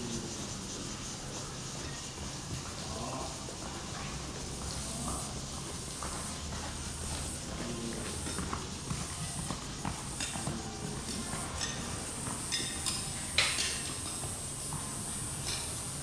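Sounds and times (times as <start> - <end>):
high-pitched hiss: 0.0 - 16.0
horse hoofbeats: 1.8 - 15.4.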